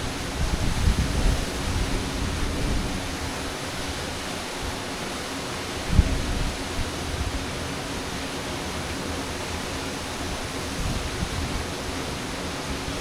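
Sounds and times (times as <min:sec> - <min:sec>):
wind buffeting microphone: 0:00.0 - 0:03.9, 0:05.8 - 0:07.5, 0:10.3 - 0:13.0.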